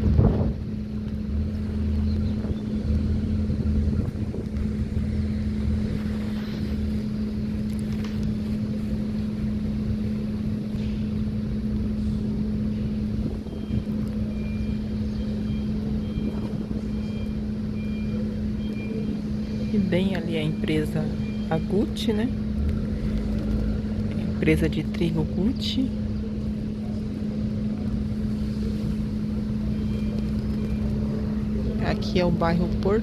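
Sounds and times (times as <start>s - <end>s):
wind on microphone: 0.0s - 1.0s, 1.6s - 9.1s
low motor hum: 0.0s - 33.0s
rumbling traffic: 0.0s - 33.0s.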